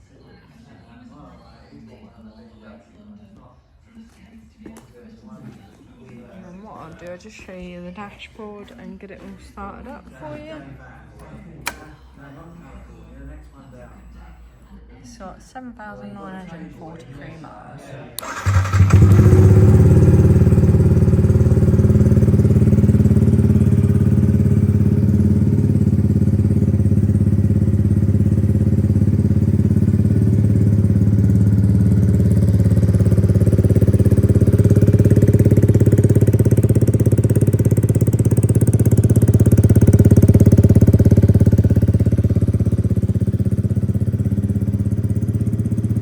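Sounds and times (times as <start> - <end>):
motorcycle engine idling: 18.2 - 46.0.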